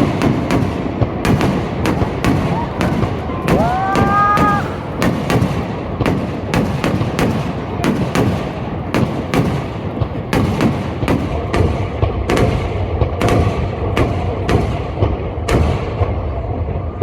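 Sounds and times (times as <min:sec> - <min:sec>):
whistling firework shell: 0:00.0 - 0:09.7
fireworks bangs and booms: 0:00.0 - 0:17.0.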